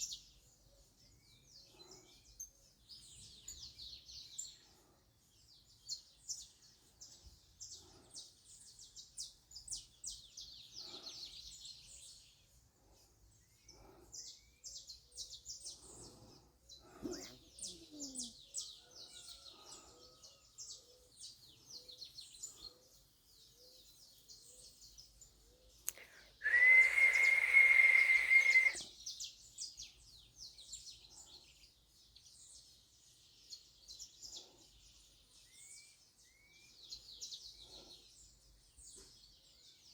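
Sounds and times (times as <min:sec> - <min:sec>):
small birds chirping: 0:00.0 - 0:39.9
high whistling tone: 0:26.4 - 0:28.8.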